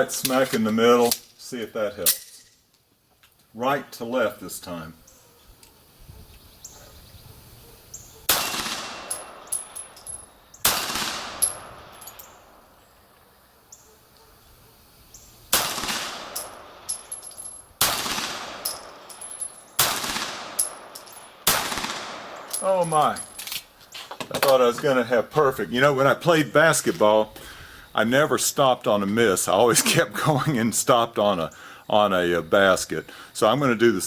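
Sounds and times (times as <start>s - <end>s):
pistol shots echoing: 8.3s - 10.0s, 10.6s - 12.6s, 15.5s - 17.2s, 17.8s - 22.6s.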